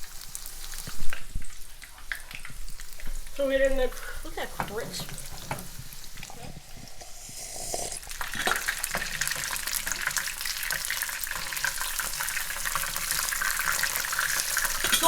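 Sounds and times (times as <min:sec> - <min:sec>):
food frying in hot oil: 0:00.0 - 0:15.0.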